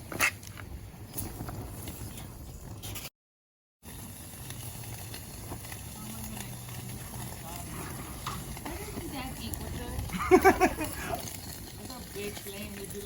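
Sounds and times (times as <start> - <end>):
bacon sizzling and popping: 3.8 - 13.0.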